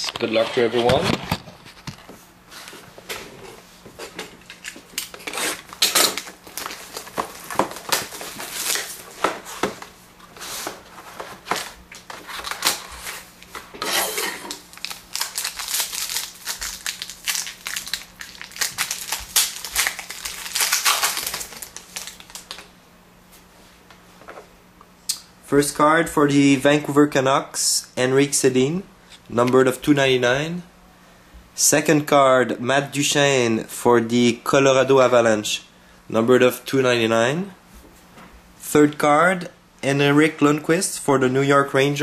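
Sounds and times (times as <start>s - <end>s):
cardboard packaging crinkling: 4.6s - 9.7s, 14.5s - 22.7s.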